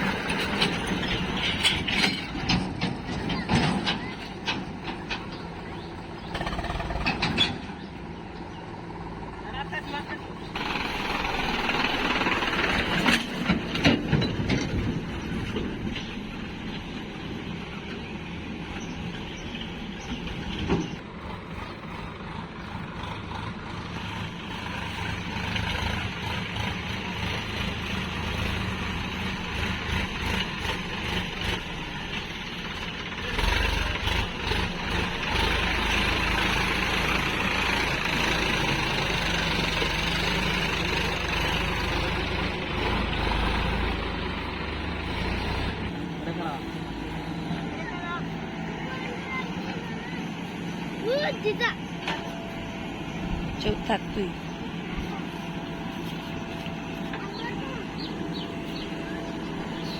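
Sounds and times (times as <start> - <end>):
diesel engines running: 0.0 - 59.9.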